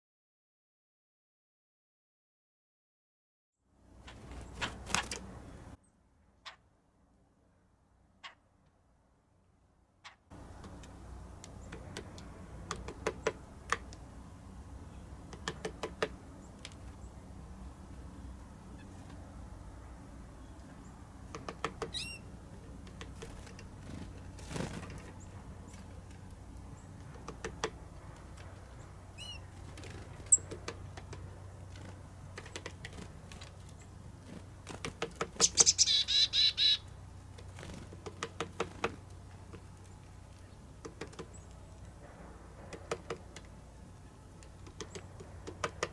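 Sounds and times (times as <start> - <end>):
low steady hum: 3.8 - 45.9
woodpecker tapping: 10.4 - 14.1, 15.2 - 16.9, 21.2 - 24.2, 25.0 - 33.9, 34.7 - 45.9
thin bird chirps: 21.9 - 22.3, 28.7 - 30.5, 35.4 - 37.0
rolling bird call: 35.4 - 37.2.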